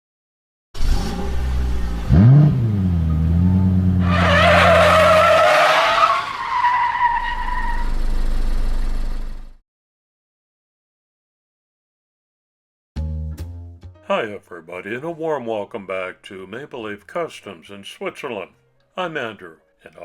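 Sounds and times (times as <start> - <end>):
car engine revving: 0.8 - 6.2
tyres squealing: 4.0 - 7.9.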